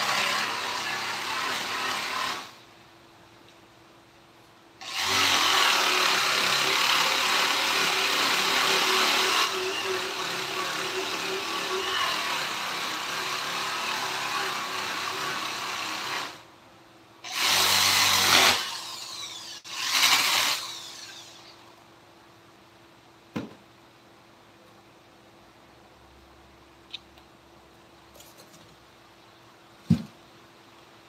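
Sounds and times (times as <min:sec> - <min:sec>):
power tool working on wood: 0:04.8 - 0:16.4.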